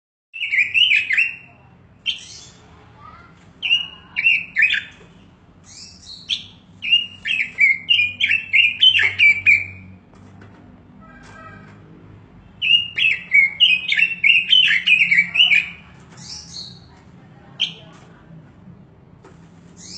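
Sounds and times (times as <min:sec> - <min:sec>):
bird singing warbled whistles: 0:05.7 - 0:09.8, 0:12.6 - 0:15.6.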